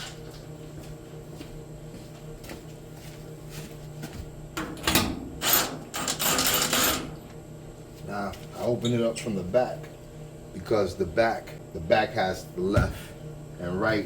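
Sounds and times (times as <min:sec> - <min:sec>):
power drill driving screws: 0:05.4 - 0:07.1.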